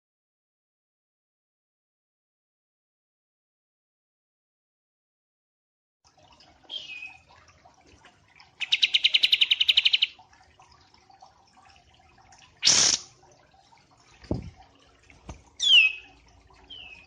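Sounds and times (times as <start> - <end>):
songbird whistle and trill: 6.7 - 7.2, 15.6 - 16.1.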